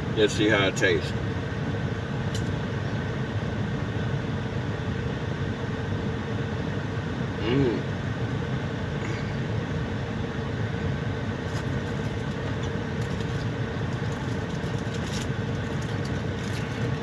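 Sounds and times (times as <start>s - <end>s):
truck engine idling: 6.0s - 17.0s
cracker being chewed: 11.5s - 17.0s.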